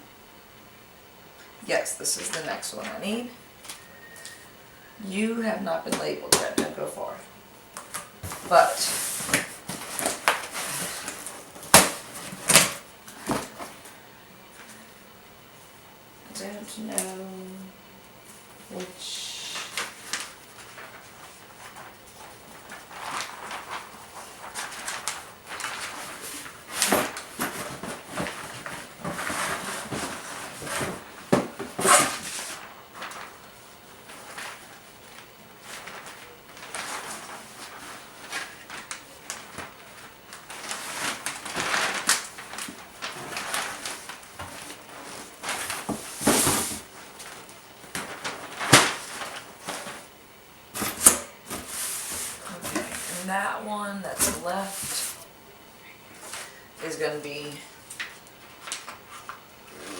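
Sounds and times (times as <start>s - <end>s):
wrapping paper rustling and crinkling: 7.8s - 14.8s, 18.4s - 50.2s, 50.8s - 55.3s, 56.1s - 59.9s.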